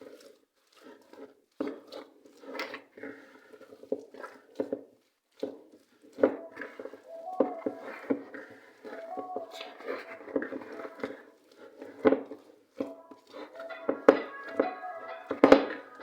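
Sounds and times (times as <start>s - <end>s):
dough mixed by hand in bowl: 0.0s - 16.0s.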